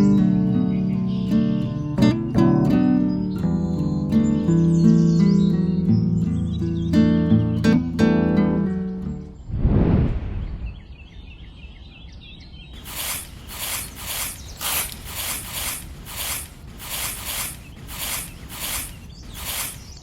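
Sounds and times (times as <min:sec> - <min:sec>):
faint chirps: 0:12.8 - 0:20.0
rhythmic hissing scraping strokes: 0:12.8 - 0:20.0.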